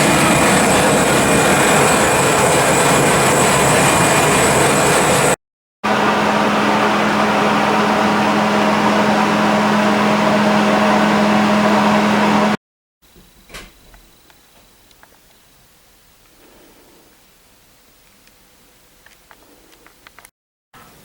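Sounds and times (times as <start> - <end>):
workshop machine whirring: 0.0 - 12.6.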